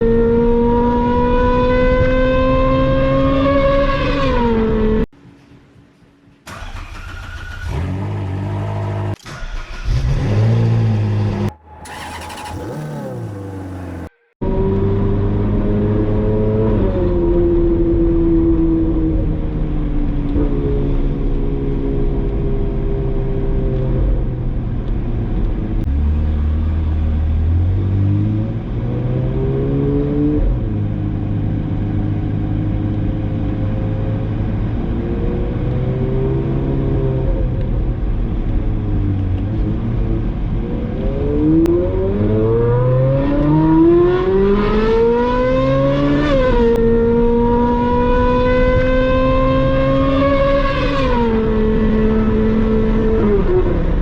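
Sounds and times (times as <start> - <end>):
sports car engine revving: 9.9 - 18.9, 38.8 - 54.0.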